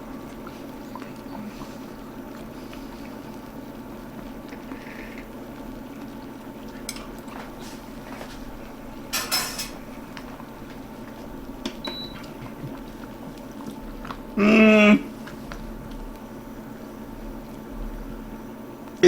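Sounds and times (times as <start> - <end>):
food simmering: 0.0 - 19.0
spoon scraping in a pot: 9.1 - 9.9.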